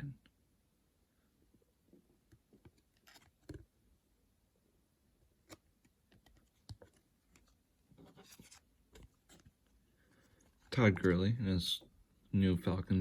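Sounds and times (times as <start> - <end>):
trading cards clicking and rustling: 2.7 - 3.6.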